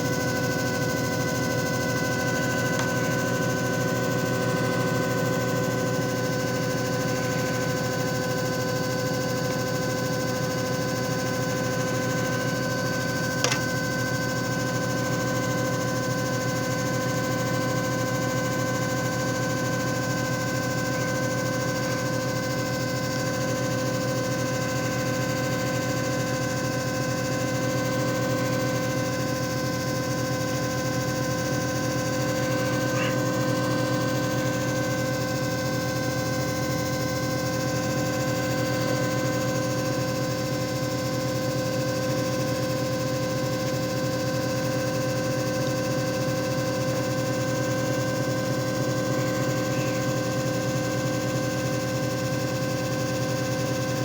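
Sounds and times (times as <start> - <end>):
machine motor hum and whine: 0.0 - 54.0
sharp click: 13.4 - 13.6.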